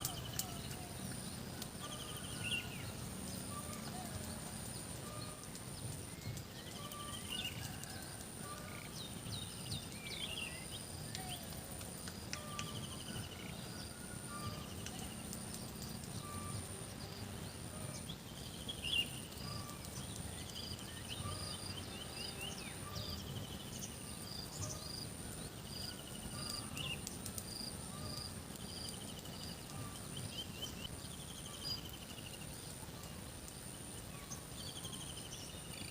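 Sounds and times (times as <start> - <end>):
birds chirping and trilling: 0.0 - 33.3.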